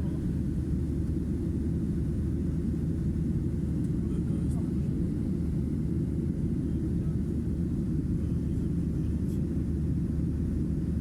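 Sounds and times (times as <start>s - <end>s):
airliner engine rumble in cabin: 0.0s - 11.0s.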